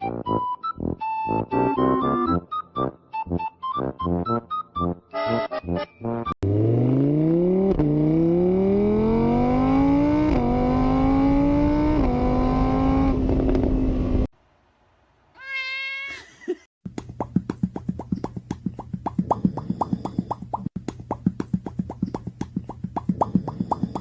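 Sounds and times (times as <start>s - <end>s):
car engine accelerating: 6.4s - 14.3s
cat meow: 15.4s - 16.3s.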